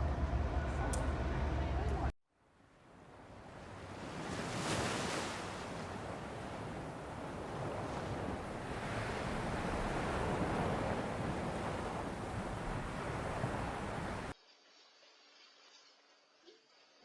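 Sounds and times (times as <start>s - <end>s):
sea waves washing: 2.9s - 14.4s
wind buffeting microphone: 4.0s - 14.4s.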